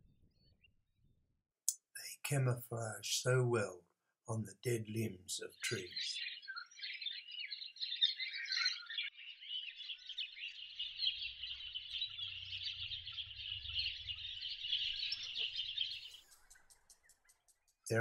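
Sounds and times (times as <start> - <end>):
cockatiels calling: 5.9 - 17.4.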